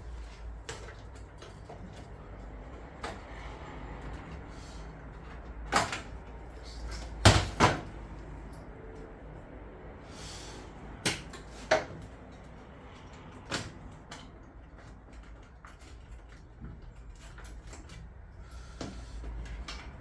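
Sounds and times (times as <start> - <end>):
sharp knocks inside boiler casing: 7.2 - 8.0.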